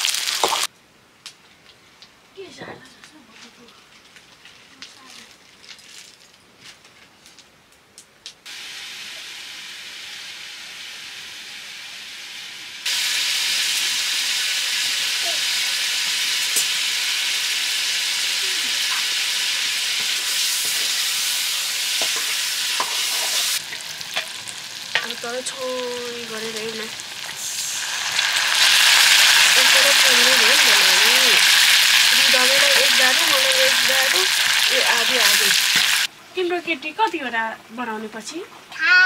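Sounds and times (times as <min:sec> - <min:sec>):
food sizzling in oil: 0:00.0 - 0:00.7, 0:08.5 - 0:36.1.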